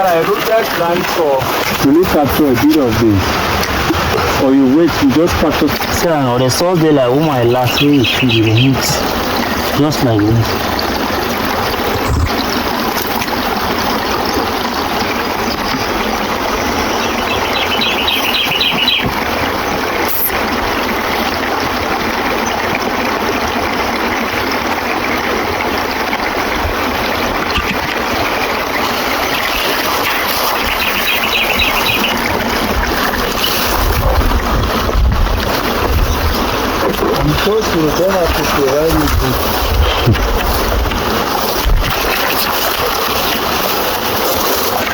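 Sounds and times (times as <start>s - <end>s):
running water rushing: 0.0s - 44.9s
rapid high chirps: 17.1s - 19.0s, 29.2s - 32.3s.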